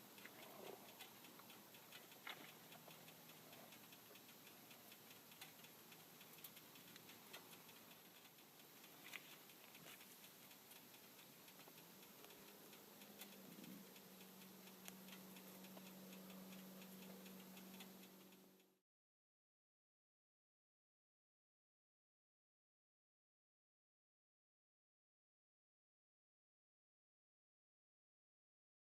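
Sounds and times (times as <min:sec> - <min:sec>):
faint hiss: 0:00.0 - 0:18.7
faint steady hum: 0:00.0 - 0:18.8
faint ticks: 0:00.0 - 0:18.8.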